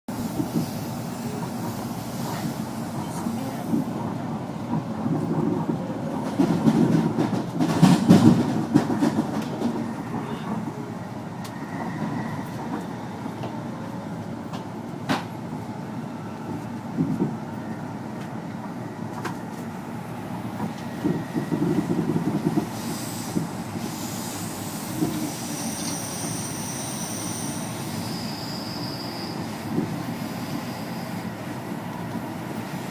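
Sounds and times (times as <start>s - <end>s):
train rumbling on rails: 0.1s - 32.9s
wheels clacking on track: 4.6s - 10.7s.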